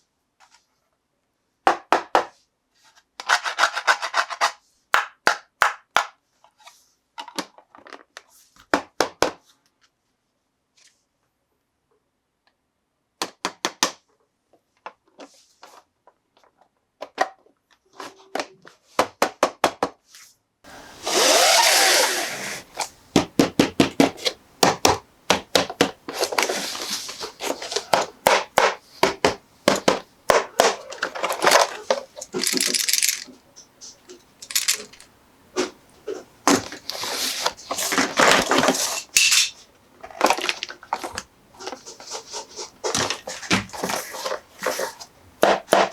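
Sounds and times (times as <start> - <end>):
packaging rustling: 20.7 - 45.9
toy clicks and taps: 32.2 - 33.3, 34.4 - 35.1.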